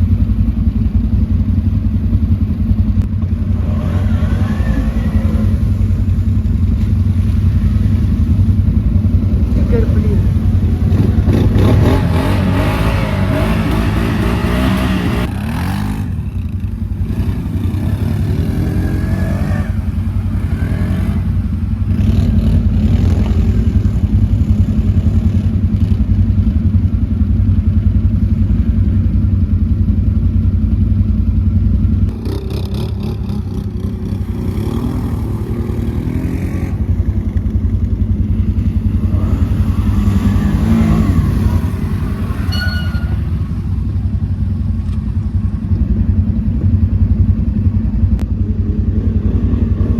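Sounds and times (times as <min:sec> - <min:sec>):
quad bike engine running: 0:00.0 - 0:49.9.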